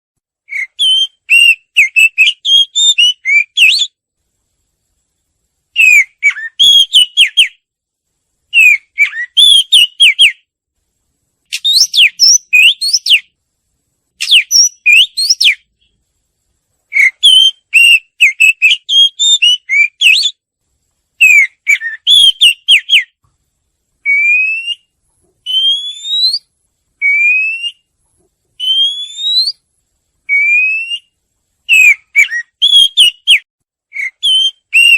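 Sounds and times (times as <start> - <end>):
songbird singing whistled notes: 0.4 - 4.0, 5.7 - 7.7, 8.5 - 10.5, 11.5 - 13.4, 14.2 - 16.0, 16.9 - 20.4, 21.2 - 23.2, 24.0 - 27.9, 28.6 - 29.6, 30.3 - 34.9
clear rising bird whistles: 0.5 - 4.0, 5.8 - 7.6, 8.5 - 10.4, 11.5 - 13.3, 14.2 - 15.7, 16.9 - 20.4, 21.2 - 23.2, 24.0 - 27.9, 28.6 - 29.6, 30.3 - 34.9.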